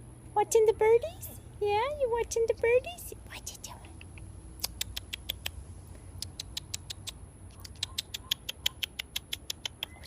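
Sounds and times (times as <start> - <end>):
cockatoo smacking clicks: 3.9 - 5.6, 6.2 - 10.0.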